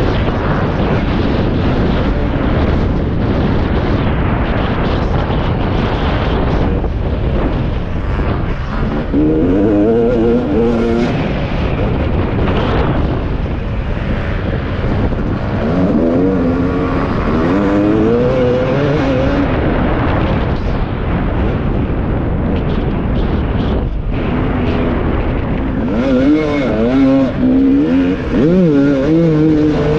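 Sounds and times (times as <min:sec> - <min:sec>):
wind rumble on microphone: 0:00.0 - 0:29.9
motocross bike engine revving: 0:08.1 - 0:11.6, 0:15.3 - 0:19.6, 0:24.2 - 0:29.9.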